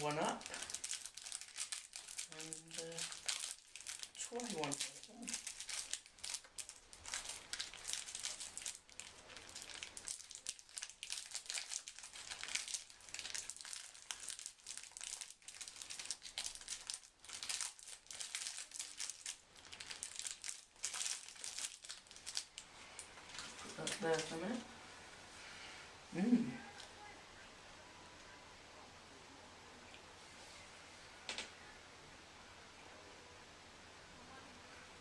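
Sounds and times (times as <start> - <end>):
plastic wrapper crinkling: 0.0 - 24.6.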